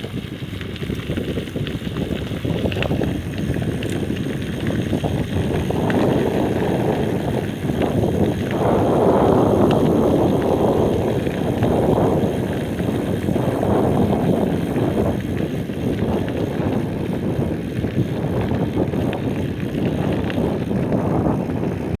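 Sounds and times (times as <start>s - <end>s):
bicycle rolling rumble: 0.0s - 22.0s
wind rushing over microphone: 0.0s - 22.0s.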